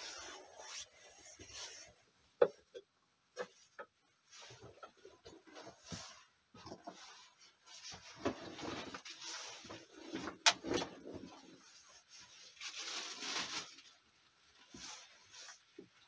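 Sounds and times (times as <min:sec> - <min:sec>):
objects handled and shifted: 0:00.0 - 0:16.0.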